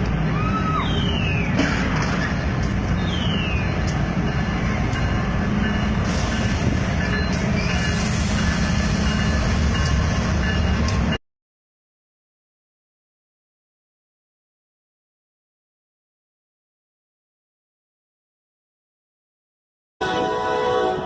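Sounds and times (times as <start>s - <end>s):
train rumbling past: 0.0s - 11.2s, 20.0s - 21.0s.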